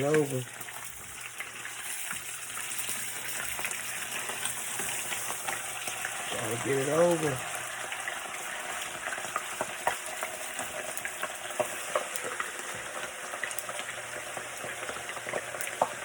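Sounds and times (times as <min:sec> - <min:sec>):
meat frying in hot grease: 0:00.0 - 0:16.0.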